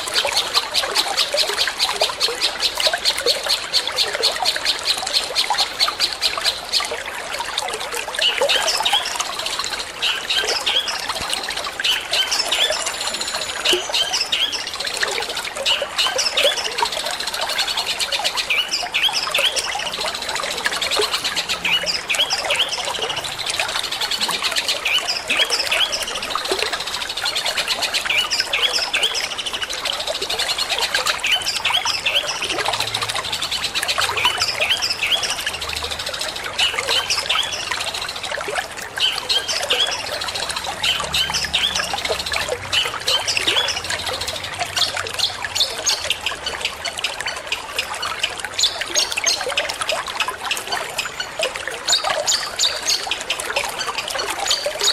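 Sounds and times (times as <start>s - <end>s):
trickle of running water: 0.0s - 54.9s.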